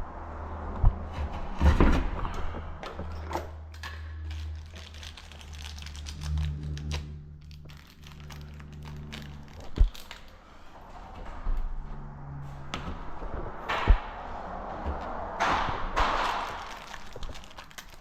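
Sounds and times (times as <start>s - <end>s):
steady low hum: 0.0s - 18.0s
clicks and rustles: 1.2s - 11.3s, 14.8s - 18.0s.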